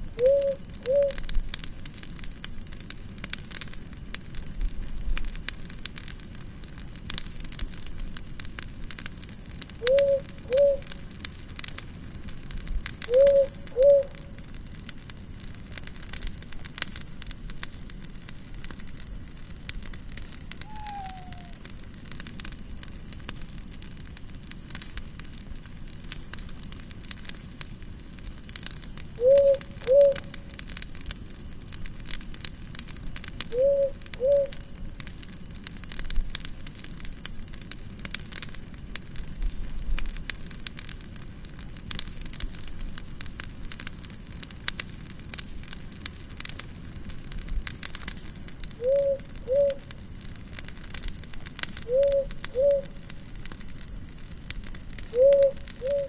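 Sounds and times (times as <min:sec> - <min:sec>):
campfire crackling and popping: 0:00.0 - 0:56.0
low two-note animal call: 0:20.6 - 0:21.6
quick high chirps: 0:26.1 - 0:27.5, 0:42.4 - 0:44.8.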